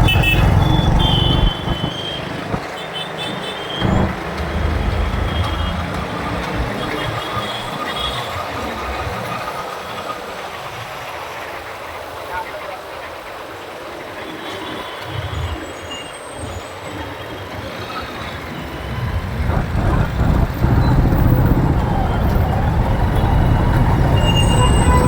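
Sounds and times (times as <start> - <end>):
low rumble: 0.0 - 2.7, 3.8 - 7.7, 18.8 - 25.0
road noise: 0.0 - 25.0.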